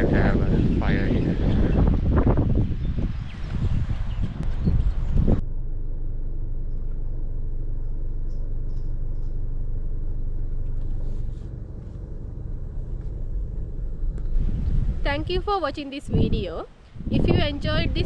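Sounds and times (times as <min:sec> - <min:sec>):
wind noise: 0:00.0 - 0:05.7, 0:10.3 - 0:18.0
car driving rumble: 0:00.0 - 0:18.0.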